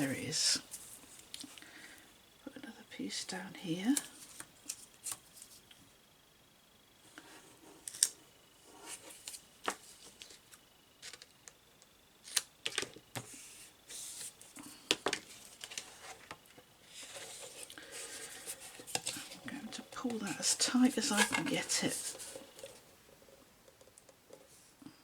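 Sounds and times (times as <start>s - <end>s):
tape handling clicks and rustles: 9.2s - 13.3s, 14.2s - 22.8s.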